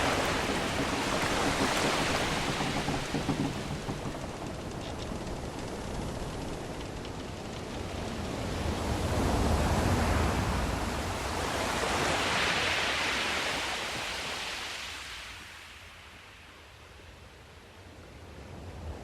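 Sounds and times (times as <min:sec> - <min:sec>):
sea waves surging: 0:00.0 - 0:15.2.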